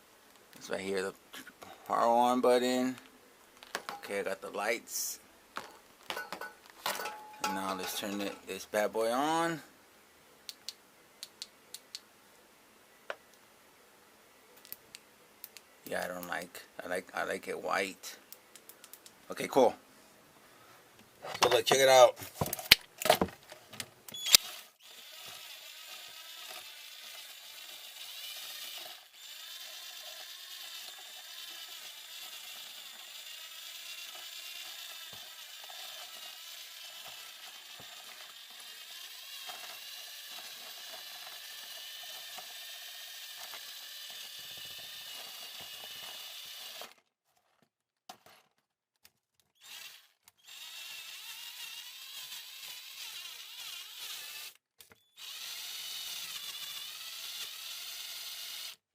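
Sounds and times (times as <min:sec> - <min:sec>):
electric drill whining: 0:24.2 - 0:47.0, 0:49.6 - 0:54.6, 0:55.2 - 0:58.8.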